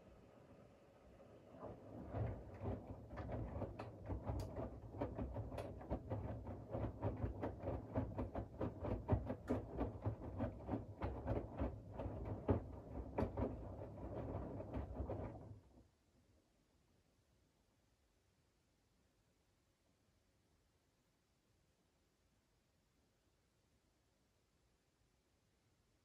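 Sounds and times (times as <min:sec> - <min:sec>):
washing machine motor hum: 0:01.0 - 0:15.7.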